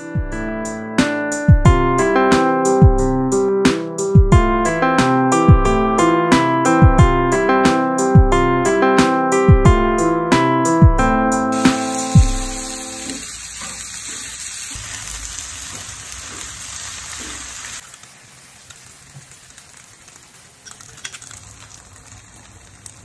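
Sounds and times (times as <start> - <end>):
food sizzling in oil: 11.5 - 23.0.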